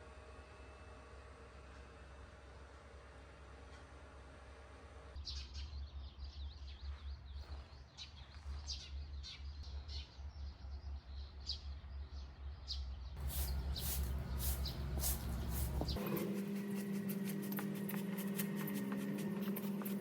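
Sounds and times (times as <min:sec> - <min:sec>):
small birds chirping: 0:05.2 - 0:20.0
steady hum: 0:13.2 - 0:20.0.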